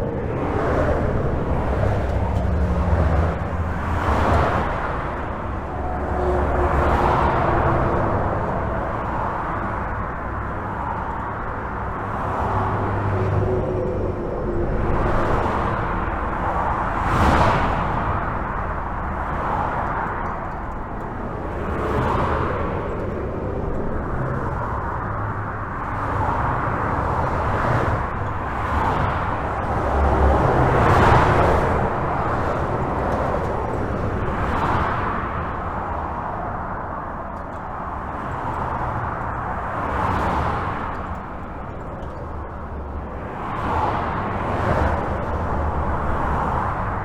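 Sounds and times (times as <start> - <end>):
vehicle passing close: 0.0 - 36.6
highway traffic rumble: 0.0 - 47.0.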